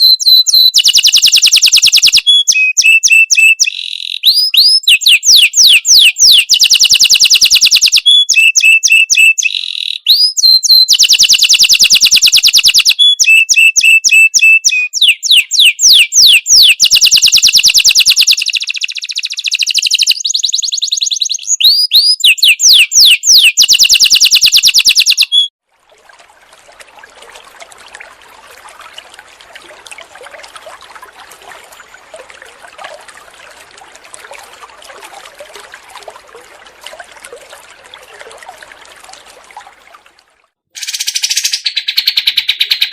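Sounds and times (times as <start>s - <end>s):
faint steady hiss: 25.7s - 40.5s.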